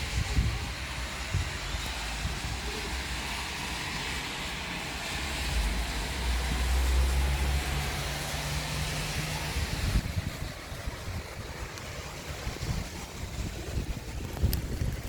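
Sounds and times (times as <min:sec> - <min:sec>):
low rumble of thunder: 0:05.2 - 0:15.0.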